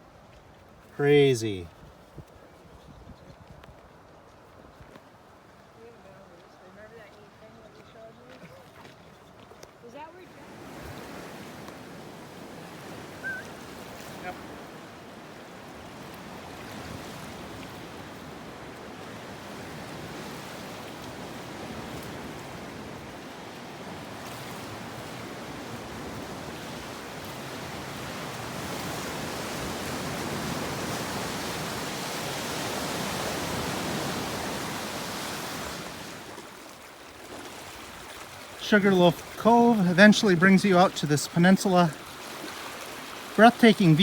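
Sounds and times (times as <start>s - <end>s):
lake waves washing ashore: 0.7s - 1.7s, 9.9s - 44.0s.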